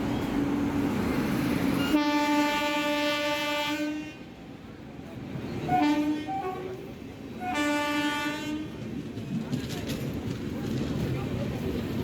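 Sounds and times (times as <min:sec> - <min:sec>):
locomotive air horn blasts: 0:01.8 - 0:04.3, 0:05.7 - 0:06.8, 0:07.4 - 0:08.8.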